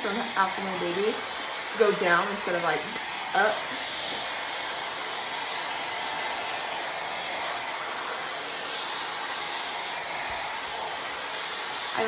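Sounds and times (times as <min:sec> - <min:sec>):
blow dryer rushing air: 0:00.0 - 0:12.0.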